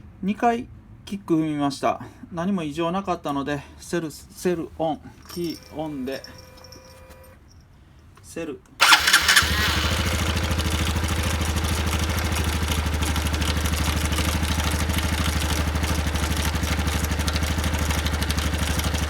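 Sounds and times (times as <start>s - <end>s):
clattering engine noise: 8.8s - 19.0s
motorcycle electric starter: 8.8s - 19.0s
motorcycle engine idling: 8.8s - 19.0s.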